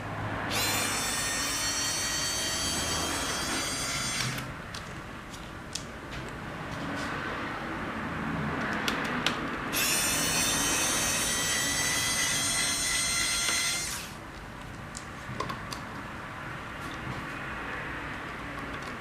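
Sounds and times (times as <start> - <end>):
electric motor whining: 0.5 - 4.5, 9.8 - 14.2.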